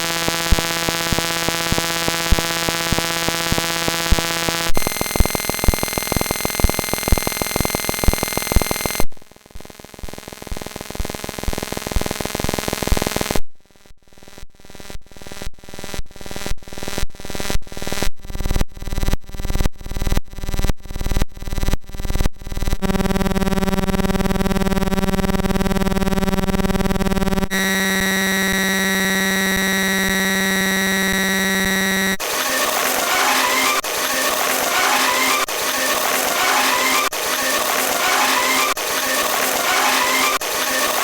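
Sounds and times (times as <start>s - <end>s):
repeated electronic pulses: 0.0s - 13.4s, 27.5s - 41.0s
harsh electronic buzzing: 0.0s - 41.0s.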